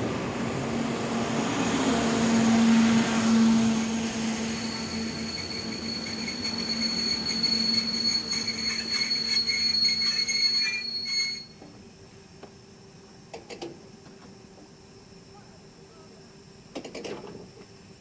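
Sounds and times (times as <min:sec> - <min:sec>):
train wheels squealing on rails: 0:01.5 - 0:11.8.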